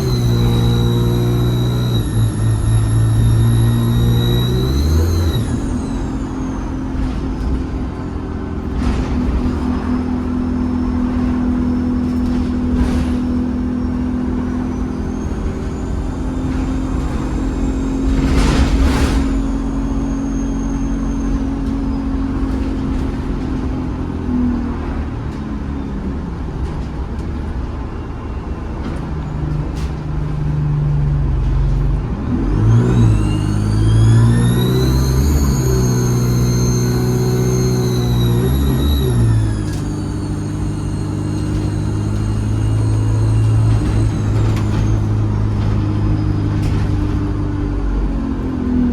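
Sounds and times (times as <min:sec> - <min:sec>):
turbocharger whistle: 0:00.0 - 0:07.1, 0:13.8 - 0:21.9, 0:32.6 - 0:46.4
bus diesel engine running: 0:00.0 - 0:48.9.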